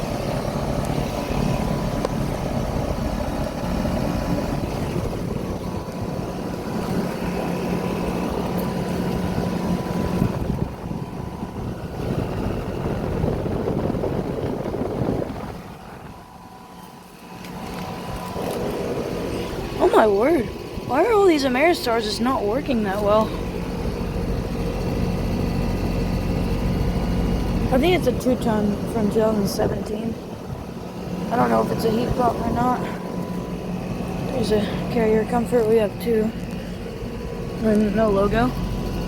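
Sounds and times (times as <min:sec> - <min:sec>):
fan whoosh: 0:00.0 - 0:23.9
compressor hum: 0:00.0 - 0:39.0.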